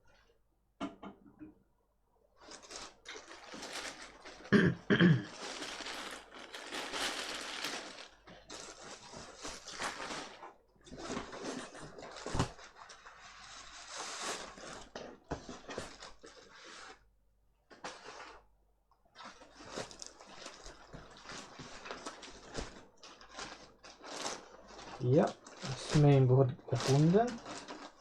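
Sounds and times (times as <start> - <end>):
plastic and metal parts clattering: 5.4 - 12.6, 19.6 - 28.0.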